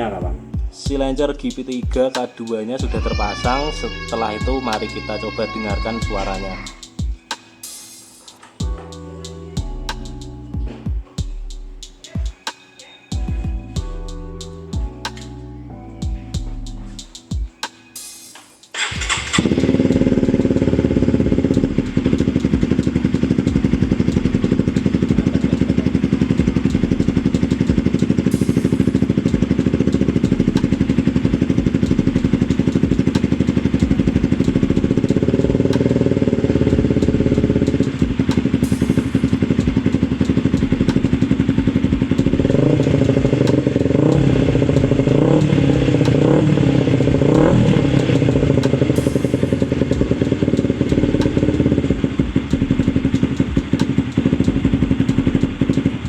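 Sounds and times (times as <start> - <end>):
motorcycle engine idling: 2.8 - 7.3, 18.8 - 56.0
short engine revs: 18.8 - 56.0.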